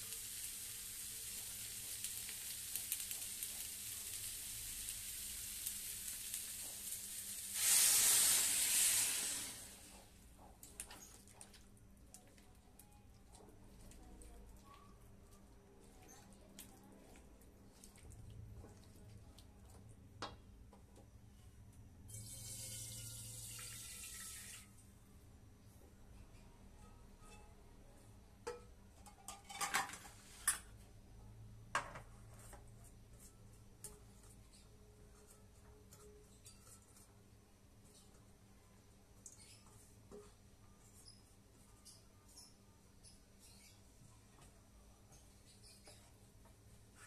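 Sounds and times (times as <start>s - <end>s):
food sizzling in a pan: 0.0s - 10.2s, 22.1s - 24.8s.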